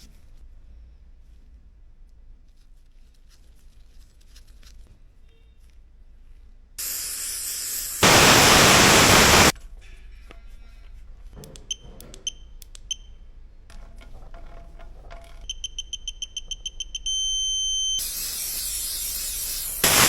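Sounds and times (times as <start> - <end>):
loud rushing hiss: 6.8 - 9.5, 18.0 - 20.0.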